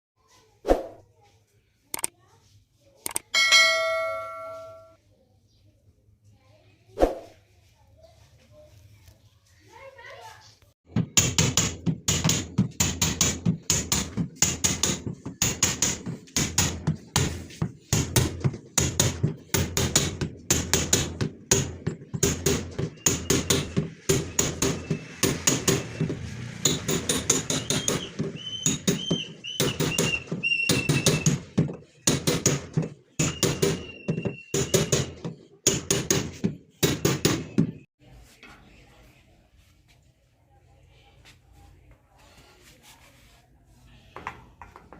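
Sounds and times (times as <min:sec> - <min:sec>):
hammer blows ringing: 0:03.4 - 0:05.0, 0:11.2 - 0:37.8.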